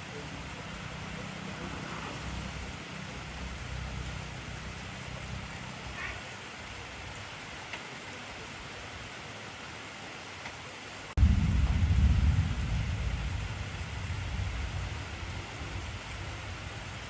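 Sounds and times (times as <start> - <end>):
heavy rain falling: 0.0 - 17.0
low rumble: 11.2 - 17.0.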